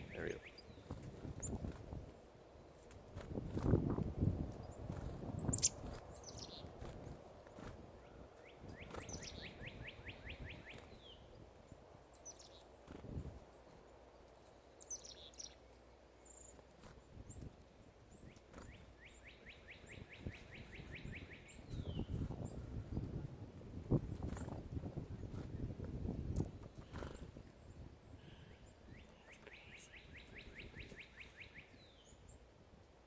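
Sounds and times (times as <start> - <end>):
songbird trilling: 0.0 - 1.6, 5.4 - 6.6, 8.5 - 11.3, 18.7 - 22.1, 28.9 - 32.2.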